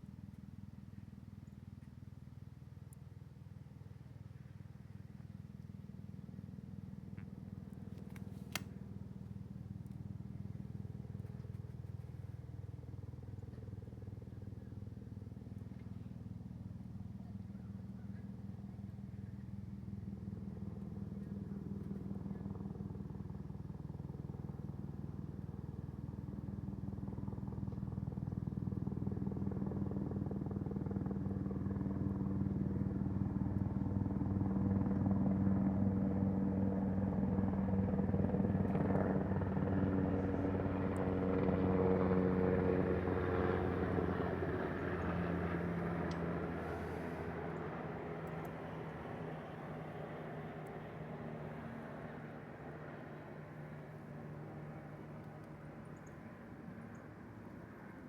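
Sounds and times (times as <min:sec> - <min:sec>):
helicopter rotor beat: 0:05.8 - 0:58.0.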